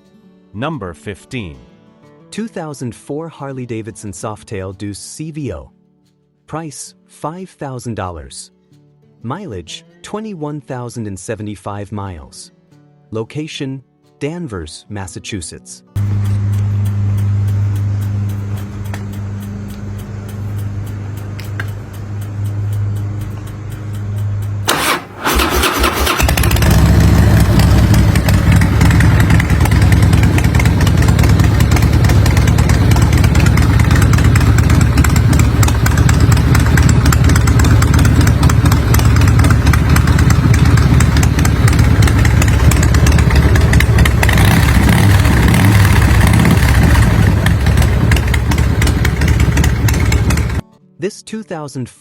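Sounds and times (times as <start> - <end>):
low hum: 16.0 - 25.3, 26.2 - 50.6
motorcycle engine starting and idling: 16.0 - 50.6.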